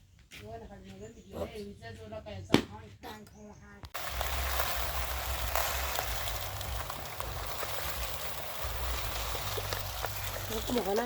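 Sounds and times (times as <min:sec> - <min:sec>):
rain hissing: 0:04.0 - 0:11.0.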